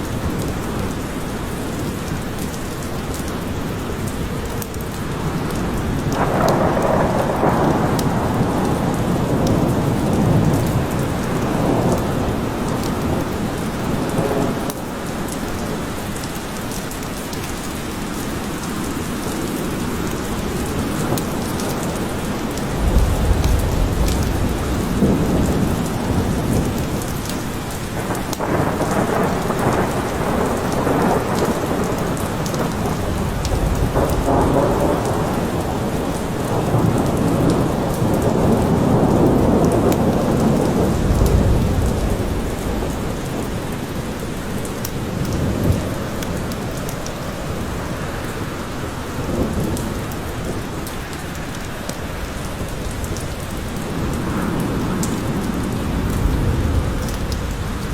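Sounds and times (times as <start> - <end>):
steady rain falling: 0.0 - 57.9
low rolling thunder: 3.8 - 14.8, 20.2 - 51.6, 52.3 - 57.9.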